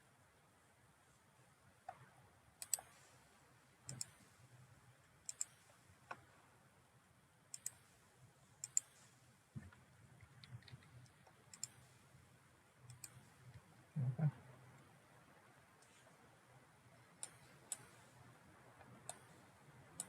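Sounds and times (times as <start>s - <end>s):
faint computer mouse clicking: 1.8s - 3.1s, 3.9s - 4.2s, 5.2s - 6.3s, 7.5s - 7.9s, 8.6s - 12.0s, 12.8s - 13.6s, 17.2s - 18.1s, 18.8s - 19.4s.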